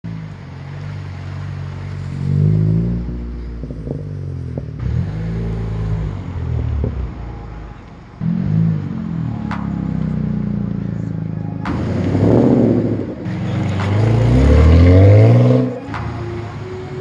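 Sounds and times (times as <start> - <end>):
car engine revving: 0.0 - 17.0
engine pops: 0.0 - 17.0.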